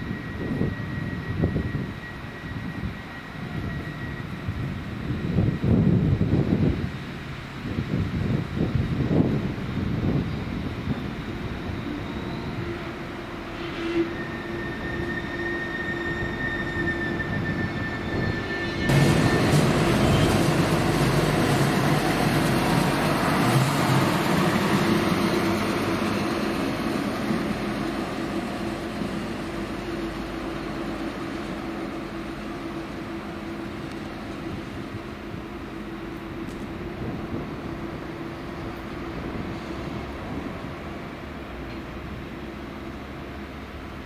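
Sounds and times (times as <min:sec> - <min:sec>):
wind on microphone: 0:00.0 - 0:12.7, 0:36.6 - 0:38.0
train wheel and rail noise: 0:00.0 - 0:44.0
high steady whine: 0:10.1 - 0:40.4.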